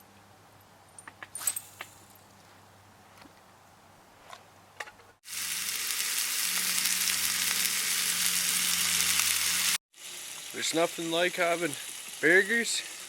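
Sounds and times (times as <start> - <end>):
burger patties sizzling: 5.2 - 13.0.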